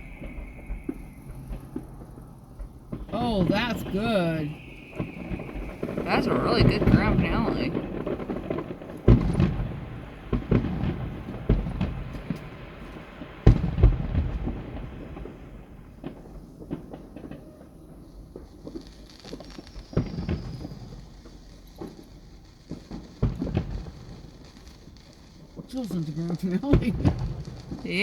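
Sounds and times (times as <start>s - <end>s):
firework shell bangs: 0.0s - 21.0s
firework crackles: 0.0s - 28.0s.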